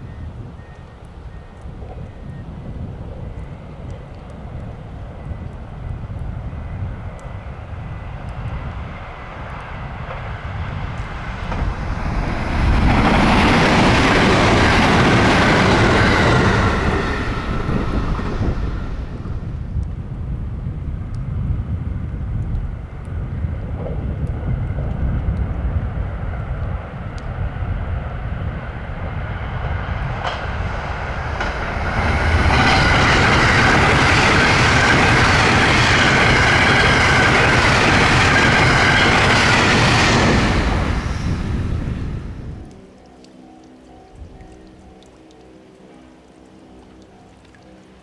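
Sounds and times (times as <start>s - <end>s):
train rumble: 0.0s - 42.9s
train wheel-on-rail noise: 0.0s - 42.9s
steady train whine: 4.3s - 20.7s, 26.1s - 42.9s.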